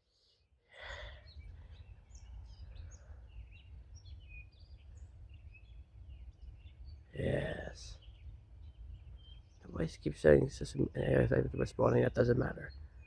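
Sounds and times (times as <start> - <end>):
faint bird chirping: 0.0 - 13.0.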